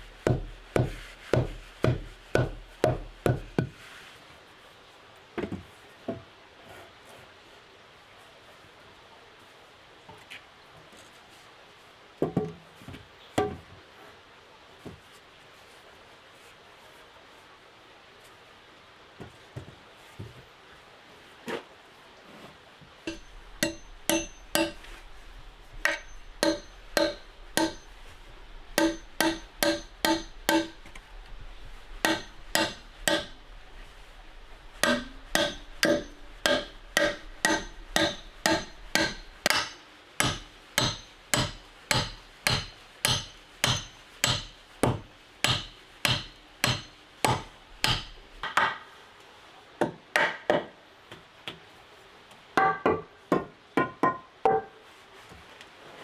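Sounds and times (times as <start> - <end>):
sharp tool strikes with ringing: 23.1 - 28.1, 28.7 - 30.9, 32.0 - 33.4, 34.8 - 44.5.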